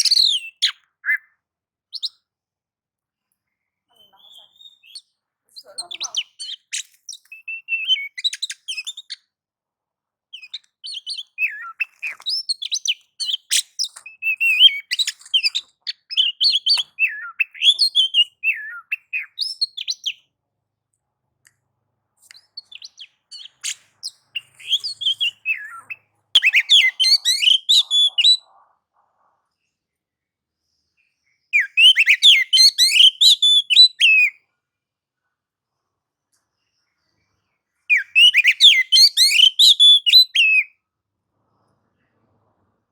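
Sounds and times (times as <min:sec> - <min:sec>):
magpie-robin singing: 0:00.0 - 0:02.3, 0:03.9 - 0:09.3, 0:10.3 - 0:20.3, 0:22.2 - 0:28.5, 0:31.5 - 0:34.4, 0:37.9 - 0:40.7.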